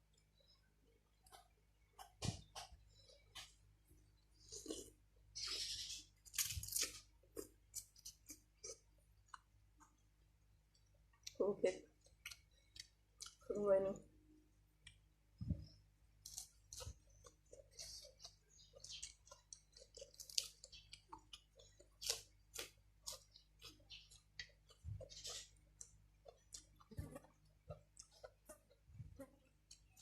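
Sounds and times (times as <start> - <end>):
person chewing noodles: 4.1 - 11.4, 12.0 - 13.4, 16.1 - 30.0.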